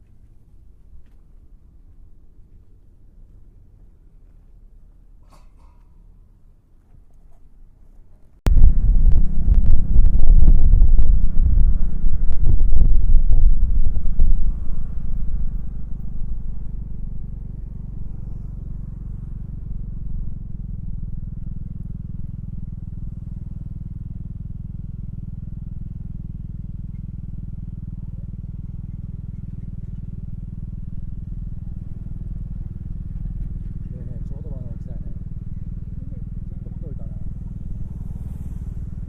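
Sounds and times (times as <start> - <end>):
scooter engine droning: 8.5 - 39.0.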